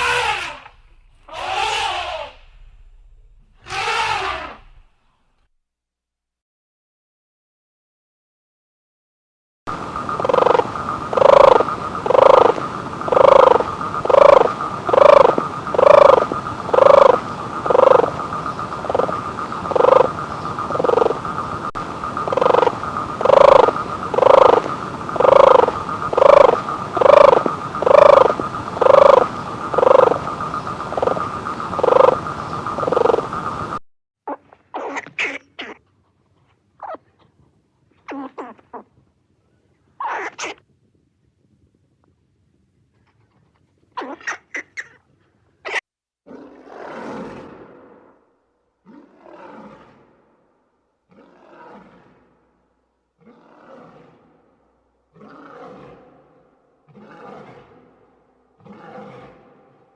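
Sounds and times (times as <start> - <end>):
animal croaking: 0.0 - 2.6, 3.6 - 4.8, 9.7 - 35.9, 36.8 - 37.3, 38.0 - 39.0, 40.0 - 40.6, 44.0 - 45.0, 51.1 - 52.5, 53.2 - 59.9
high-pitched drone: 9.7 - 33.8.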